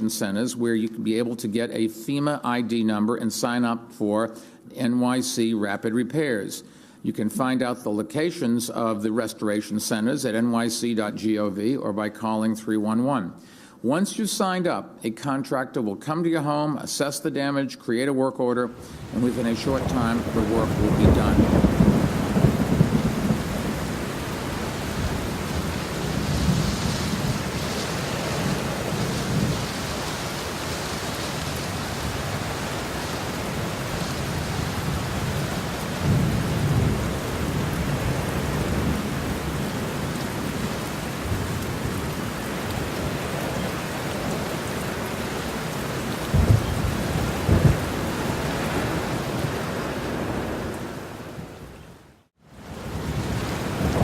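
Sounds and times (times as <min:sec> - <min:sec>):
thunder rumbling: 0:18.8 - 0:51.2, 0:52.7 - 0:54.0
steady rain: 0:18.8 - 0:54.0.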